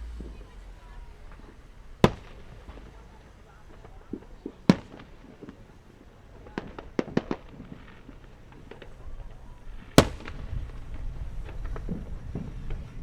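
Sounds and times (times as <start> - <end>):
low rumble: 0.0 - 3.9
firework loud bang: 0.0 - 13.0
fireworks popping: 0.0 - 13.0.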